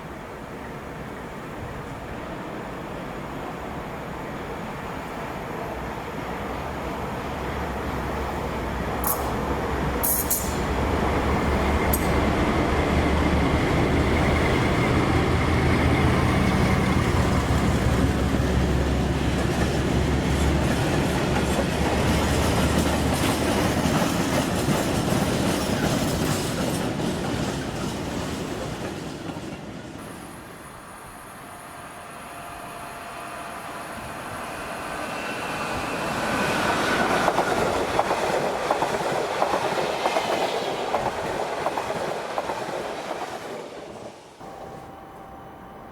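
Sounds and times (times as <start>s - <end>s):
high squeal of train: 0.0s - 45.9s
train wheels clattering: 16.3s - 29.7s.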